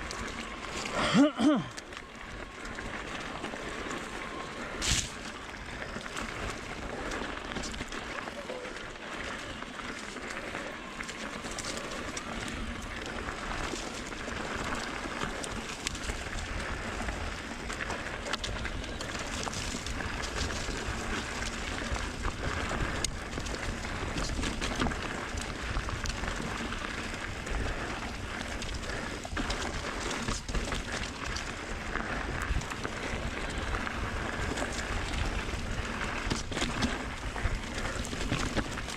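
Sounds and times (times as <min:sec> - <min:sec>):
tyres rolling over gravel: 0:00.0 - 0:38.9.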